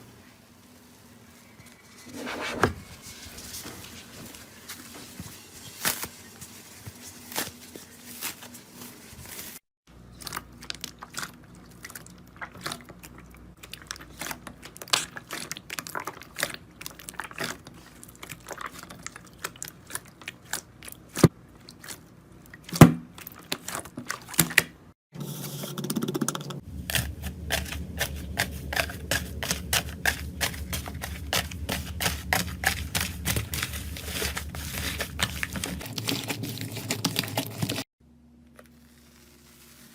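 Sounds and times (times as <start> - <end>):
steady low hum: 26.3 - 35.8.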